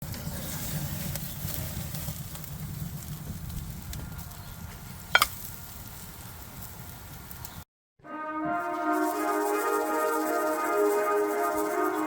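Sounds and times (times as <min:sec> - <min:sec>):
steak sizzling on grill: 0:00.1 - 0:07.5.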